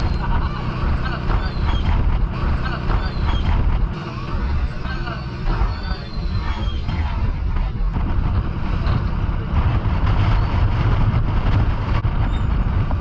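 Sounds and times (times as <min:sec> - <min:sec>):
wind buffeting microphone: 0:05.2 - 0:13.0.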